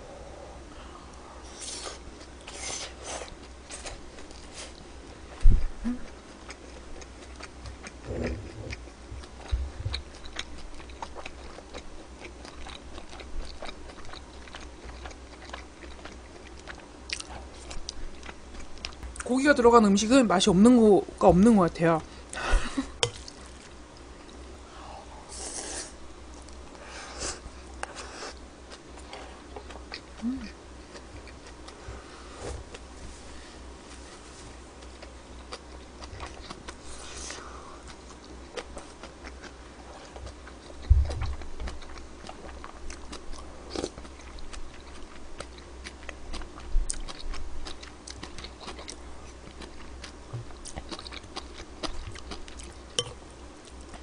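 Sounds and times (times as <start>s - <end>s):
person chewing food: 1.1s - 19.2s, 26.2s - 32.0s, 34.8s - 54.0s.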